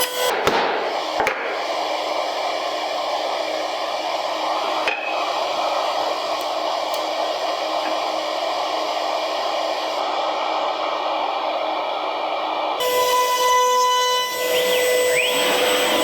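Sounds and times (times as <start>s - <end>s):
electric motor whirring: 0.0s - 0.4s, 12.8s - 16.0s.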